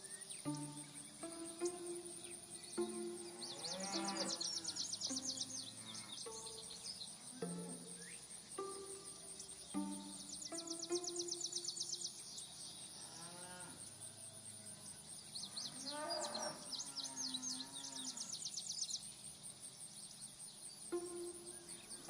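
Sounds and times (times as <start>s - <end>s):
cattle mooing: 3.4s - 4.8s.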